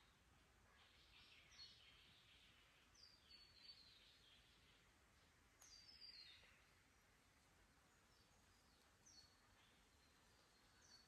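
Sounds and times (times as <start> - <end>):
faint birdsong: 0.0 - 11.0
faint low hiss: 0.0 - 11.0.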